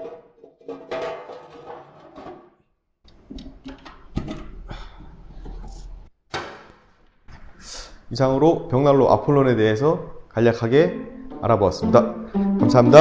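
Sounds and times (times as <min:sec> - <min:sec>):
plucked-string music: 0:10.7 - 0:13.0.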